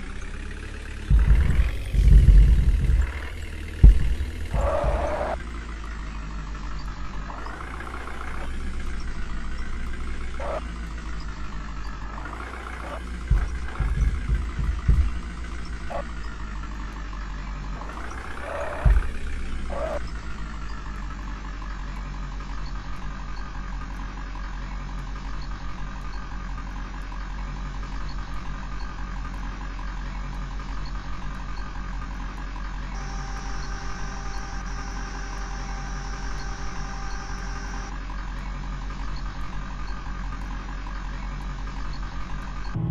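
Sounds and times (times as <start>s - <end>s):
diesel engine revving: 0.0s - 42.9s
heavy knocks: 1.1s - 5.4s, 12.2s - 16.8s, 17.8s - 20.3s.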